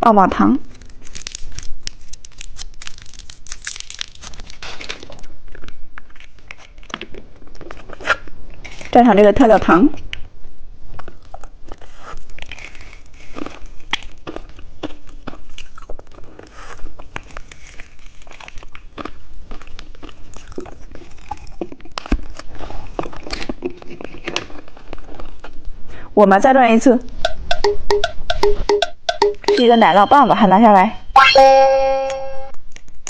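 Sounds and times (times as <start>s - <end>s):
licking and crunching candy: 0.6s - 9.0s, 10.9s - 25.7s
popping candy crackles: 0.6s - 9.0s, 11.0s - 25.7s.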